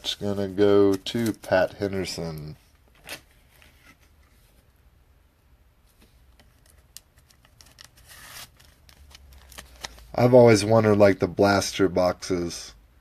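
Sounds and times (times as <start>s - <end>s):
trading cards being handled: 0.0s - 4.1s, 6.0s - 10.3s.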